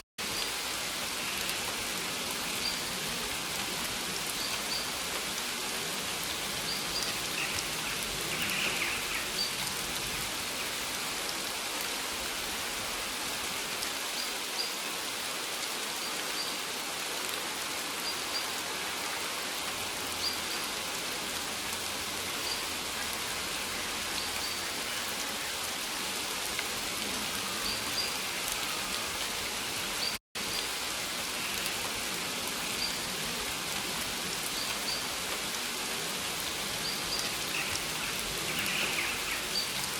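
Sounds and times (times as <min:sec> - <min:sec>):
steady rain falling: 0:00.2 - 0:39.9.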